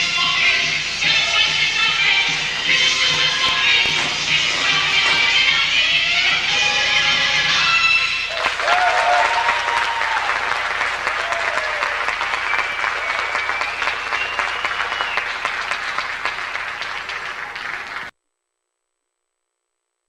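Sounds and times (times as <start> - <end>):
audience applauding: 8.2 - 18.1
cheers: 8.3 - 18.1.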